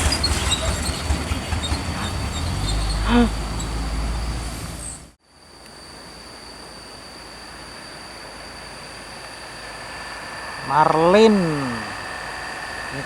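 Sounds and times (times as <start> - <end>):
bus diesel engine rumbling: 0.0 - 5.2, 9.5 - 13.0
traffic noise: 0.0 - 5.2, 5.9 - 13.0
high thin whine: 7.0 - 13.0.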